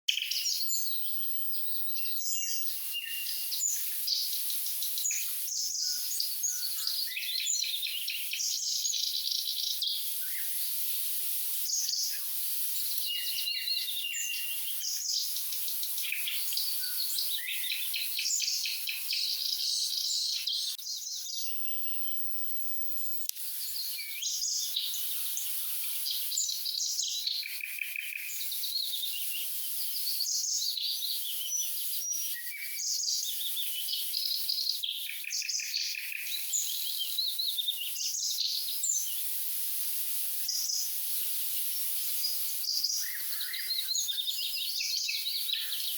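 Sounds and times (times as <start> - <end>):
bird singing: 0.1 - 10.5, 13.0 - 22.1, 42.7 - 45.9.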